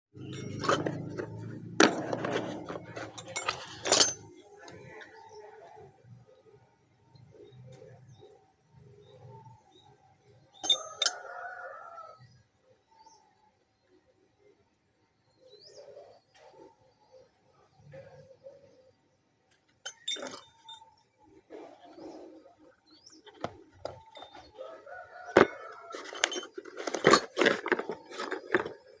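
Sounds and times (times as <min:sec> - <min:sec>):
metal parts clinking: 0:00.2 - 0:05.0, 0:10.6 - 0:11.2, 0:19.9 - 0:20.8, 0:23.2 - 0:29.0.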